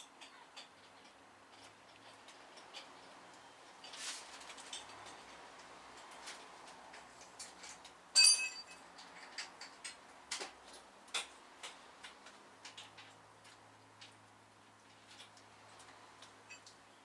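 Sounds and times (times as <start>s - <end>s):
tools and metal parts clicking: 7.4s - 10.0s
ringing metallic clink: 8.2s - 8.8s.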